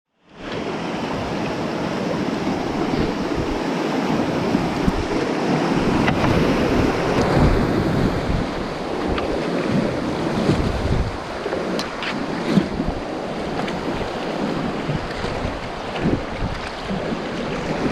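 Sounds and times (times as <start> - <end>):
whitewater rapids rushing: 0.4 - 17.9
wind buffeting microphone: 0.5 - 17.9.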